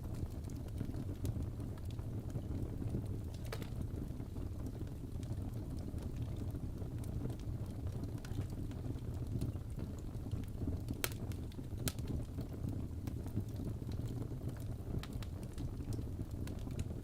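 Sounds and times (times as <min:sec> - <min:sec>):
fire crackling: 0:00.0 - 0:17.0
low rumble of flames: 0:00.0 - 0:17.0
loud pops of fire: 0:10.5 - 0:17.0.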